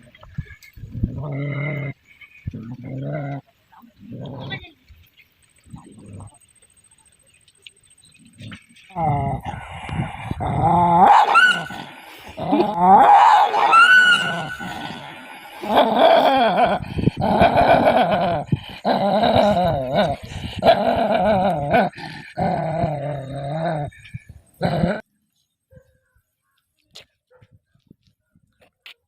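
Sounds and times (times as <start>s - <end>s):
dog howling and whining: 10.7s - 11.8s, 12.5s - 14.8s.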